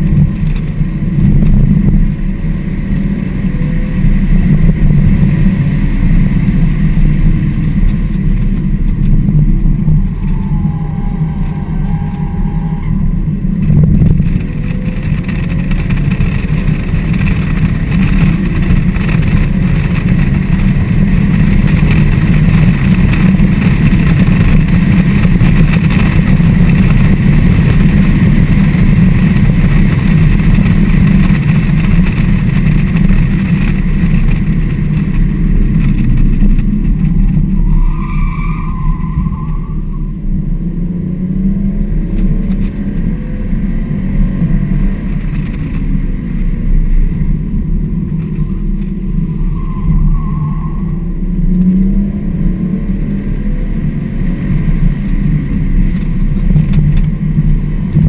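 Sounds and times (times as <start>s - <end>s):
car engine under load: 0.0s - 58.0s
road and wind noise: 0.0s - 58.0s
brief thin squeal: 37.6s - 40.1s, 49.4s - 51.0s.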